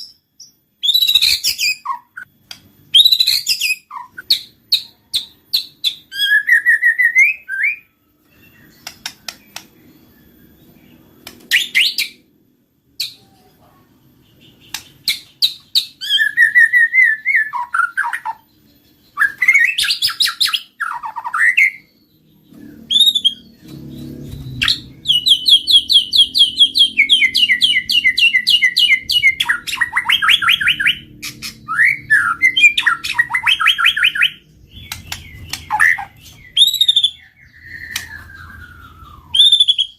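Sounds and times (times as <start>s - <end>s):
songbird whistling and trilling: 0.0s - 12.3s, 14.3s - 39.9s
faint low rumble: 28.6s - 39.4s.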